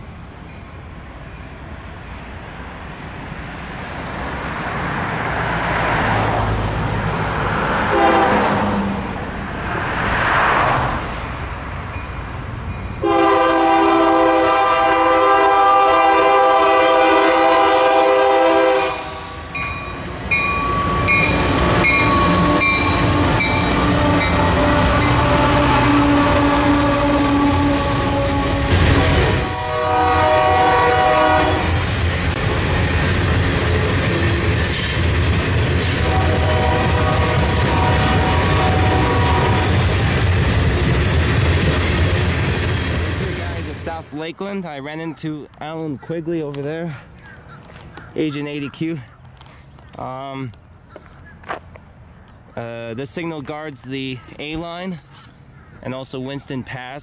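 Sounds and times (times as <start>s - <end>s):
train rumbling: 0.0s - 57.0s
locomotive air horn chord: 7.9s - 8.8s, 13.0s - 19.5s, 21.9s - 31.8s, 36.0s - 39.7s.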